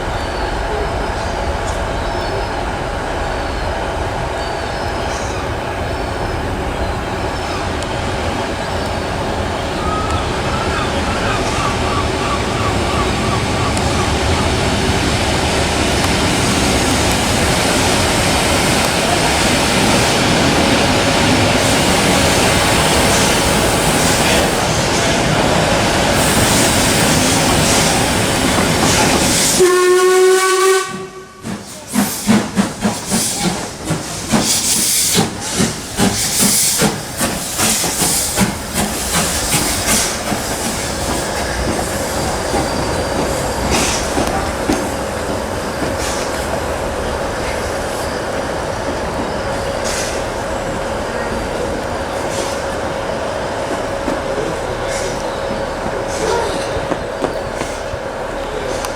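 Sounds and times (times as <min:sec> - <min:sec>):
steam locomotive hissing: 0:00.0 - 0:58.9
steam whistle blast: 0:29.5 - 0:31.5.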